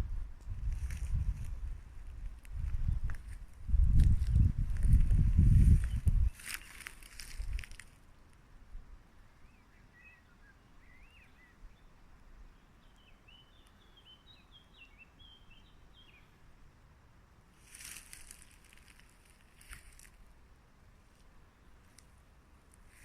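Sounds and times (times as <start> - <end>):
rustling noise: 0.0 - 8.0, 17.6 - 20.3, 21.1 - 23.0
songbird singing: 0.0 - 8.3, 9.2 - 16.6, 17.6 - 20.1.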